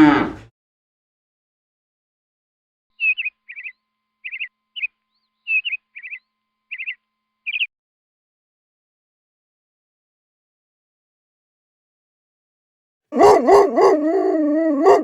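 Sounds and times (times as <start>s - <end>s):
small bird chirping: 3.0s - 7.7s.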